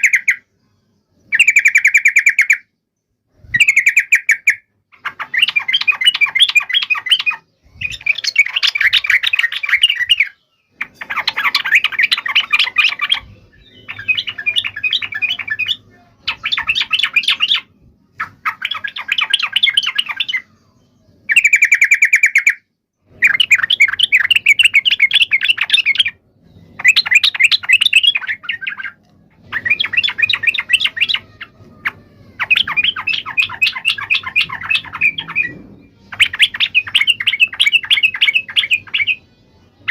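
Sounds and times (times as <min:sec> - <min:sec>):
buzzy bird trill: 0:00.0 - 0:02.7, 0:03.3 - 0:39.9
bird chattering calls: 0:26.8 - 0:39.2.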